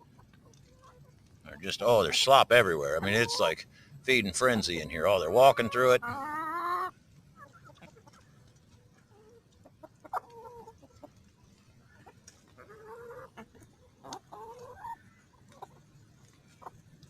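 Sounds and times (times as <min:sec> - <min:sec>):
hens clucking: 0:00.0 - 0:17.0.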